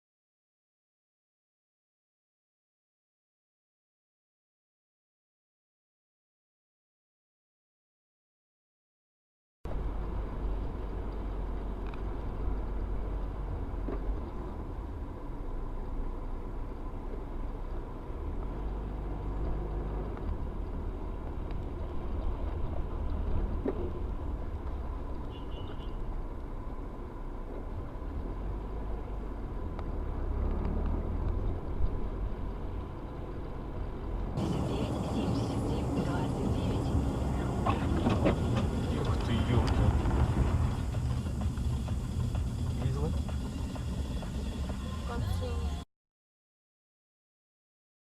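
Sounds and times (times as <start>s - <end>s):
moving car rumble: 9.7s - 45.9s.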